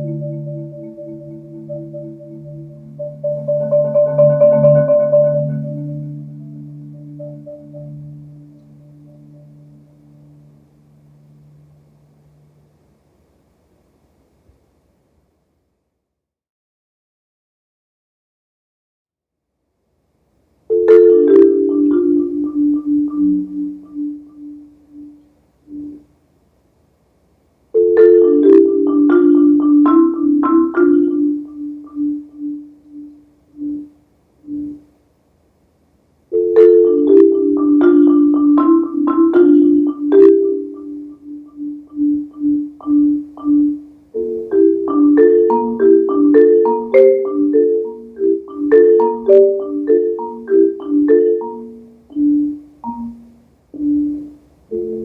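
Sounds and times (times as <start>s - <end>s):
marimba played with mallets: 0.0s - 10.4s, 20.7s - 26.0s, 27.8s - 34.9s, 36.3s - 55.0s.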